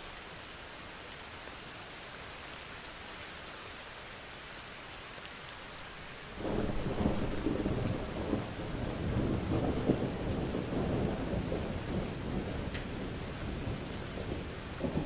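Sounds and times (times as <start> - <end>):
rain hissing: 0.0 - 15.0
thunder rumbling: 6.4 - 15.0.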